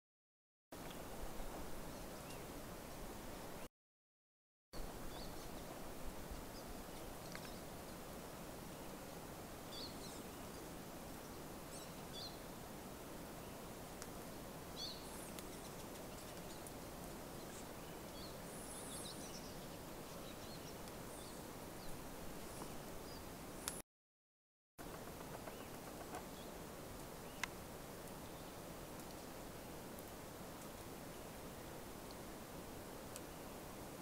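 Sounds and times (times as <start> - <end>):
outdoor background hiss: 0.8 - 3.7, 4.8 - 23.8, 24.8 - 34.0
birds chirping: 14.7 - 23.8, 24.8 - 29.8.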